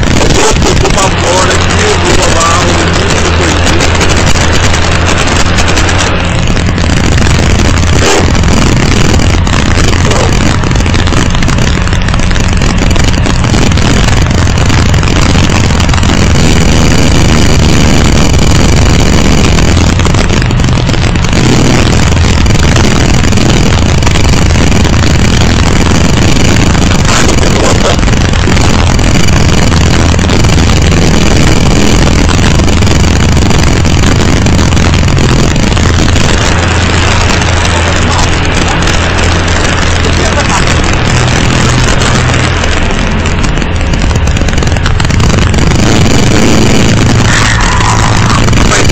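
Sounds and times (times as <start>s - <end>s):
engine running: 0.0s - 48.9s.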